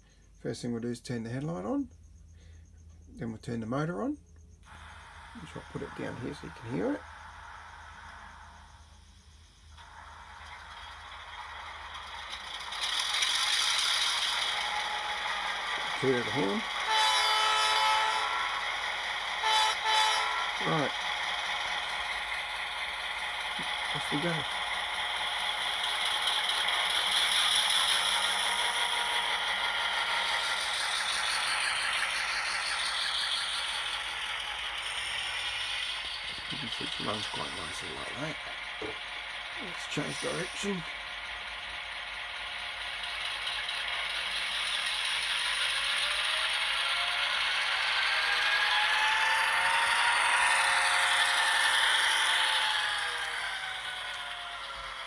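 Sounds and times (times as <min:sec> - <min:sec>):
rattle of wheels and drive: 0:00.0 - 0:19.4, 0:20.4 - 0:55.0
model train diesel engine sound: 0:00.0 - 0:55.0.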